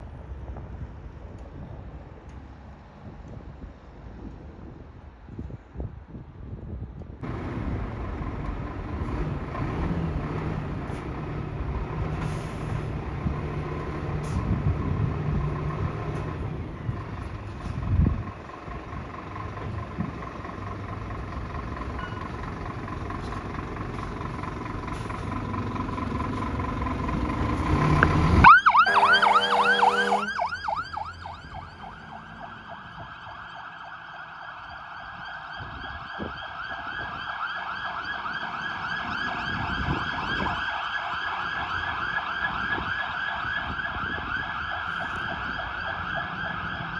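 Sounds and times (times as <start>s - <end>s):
fire engine diesel engine: 7.2s - 46.9s
emergency siren wailing: 19.6s - 46.9s
air horn blast: 27.8s - 32.0s.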